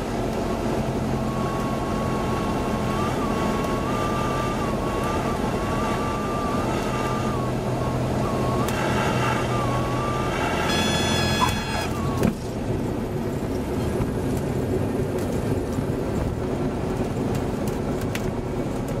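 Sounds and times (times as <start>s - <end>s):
airplane engine idling: 0.0s - 18.2s
airflow noise in cockpit: 0.0s - 19.0s
stall warning horn: 1.2s - 12.2s.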